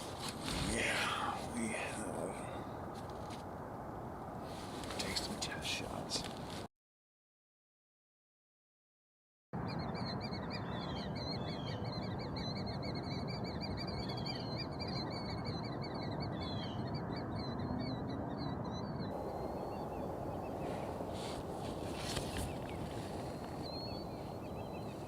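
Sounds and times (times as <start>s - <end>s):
birds warbling trill: 9.6s - 25.0s.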